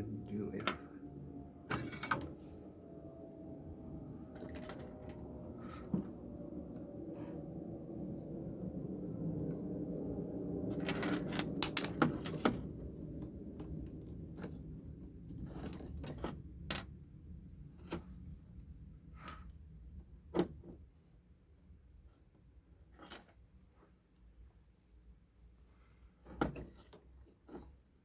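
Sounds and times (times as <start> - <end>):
low hum: 0.0 - 15.8.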